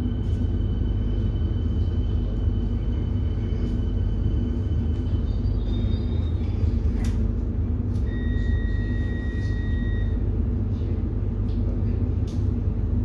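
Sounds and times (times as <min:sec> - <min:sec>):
train interior rumble and hum: 0:00.0 - 0:13.0.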